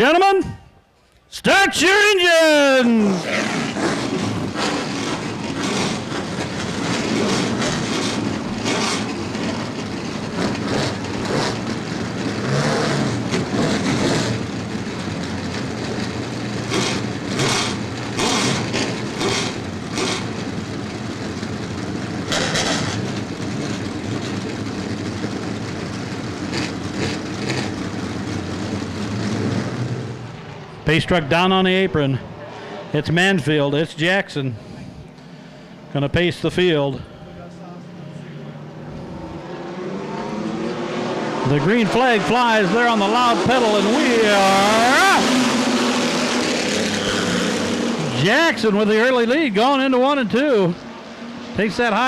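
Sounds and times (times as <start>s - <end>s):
race truck engines revving: 0.0s - 52.0s.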